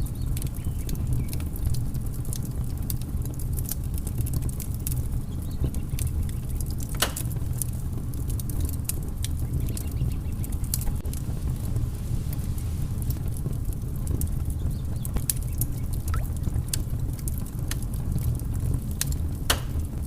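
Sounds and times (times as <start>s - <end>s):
fire crackling and popping: 0.0s - 20.0s.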